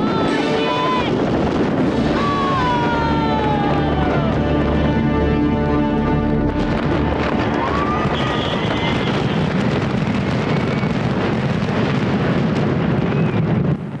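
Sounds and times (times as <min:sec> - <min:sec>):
fireworks crackling and rumbling: 0:00.0 - 0:14.0
firework whistle: 0:06.7 - 0:11.6, 0:12.8 - 0:13.7.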